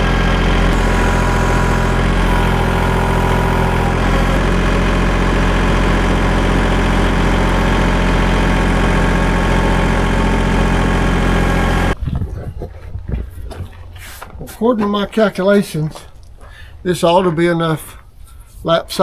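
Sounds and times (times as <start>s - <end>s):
sawmill gas engine running: 0.0s - 12.0s.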